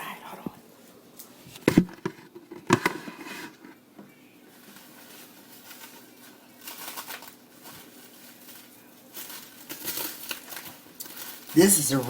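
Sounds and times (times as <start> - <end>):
plastic wrap crinkling: 4.4 - 12.0.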